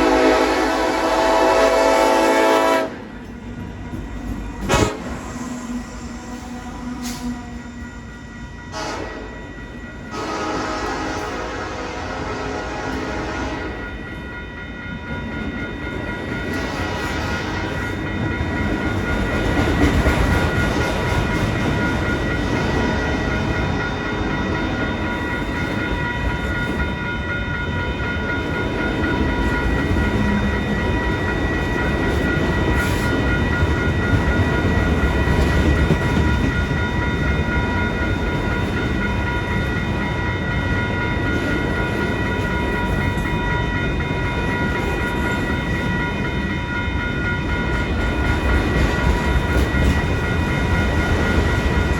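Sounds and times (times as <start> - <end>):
freight train cars rumbling past: 0.0 - 51.9
steady high tones: 3.1 - 10.3.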